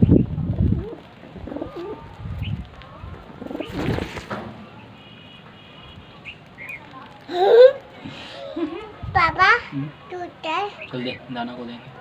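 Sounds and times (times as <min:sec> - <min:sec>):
pigeons cooing: 0:00.6 - 0:04.3.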